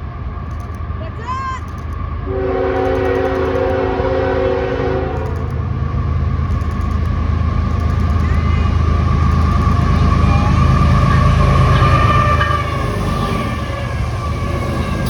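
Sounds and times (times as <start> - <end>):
freight train rumbling past: 0.0 - 15.0
train air horn blast: 2.3 - 5.4.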